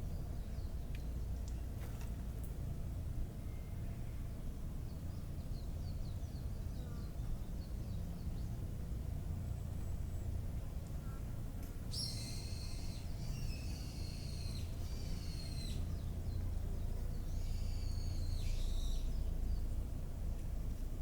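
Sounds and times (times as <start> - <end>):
bird whistling: 11.9 - 15.8
steady low rumble: 15.8 - 21.0.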